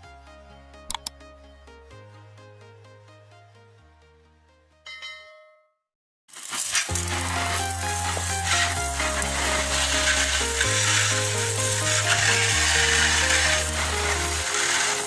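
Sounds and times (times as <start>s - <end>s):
background music: 0.0s - 5.3s, 6.7s - 15.0s
pressure washer spraying water: 6.3s - 15.0s.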